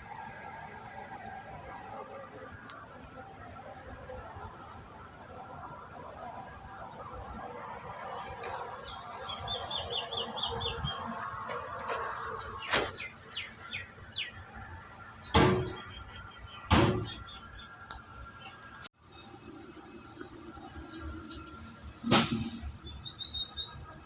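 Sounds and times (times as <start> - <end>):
sharp knocks: 15.3 - 15.9, 16.7 - 17.2.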